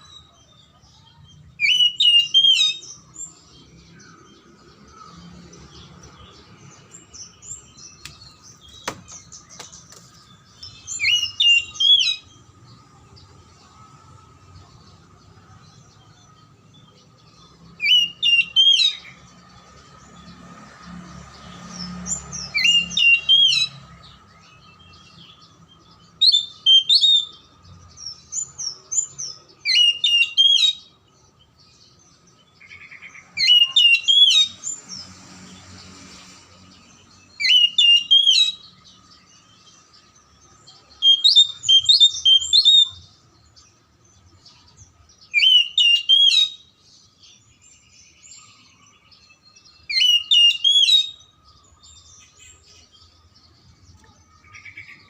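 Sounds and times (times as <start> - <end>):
bird singing whistled phrases: 1.0 - 3.3, 10.6 - 12.4, 17.8 - 19.2, 22.4 - 23.8, 26.1 - 27.5, 28.4 - 31.0, 33.4 - 34.6, 37.3 - 38.8, 40.9 - 43.2, 45.2 - 46.8, 49.8 - 51.4.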